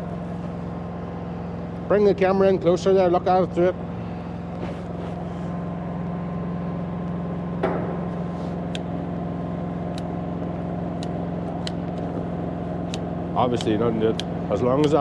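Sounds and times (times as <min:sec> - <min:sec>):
generator engine running: 0:00.0 - 0:15.0
short knock: 0:07.6 - 0:08.4.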